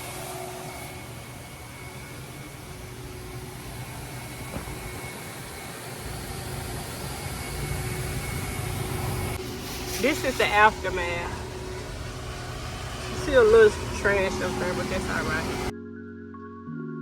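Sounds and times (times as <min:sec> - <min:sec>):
vacuum running: 0:00.0 - 0:15.7.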